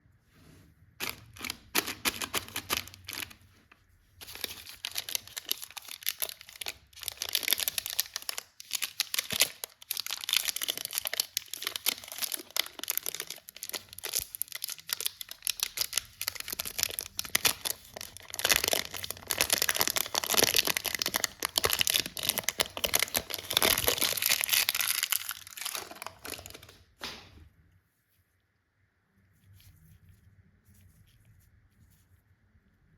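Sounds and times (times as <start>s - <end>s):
wrappers crinkling and tearing: 1.0s - 3.4s, 4.2s - 26.8s.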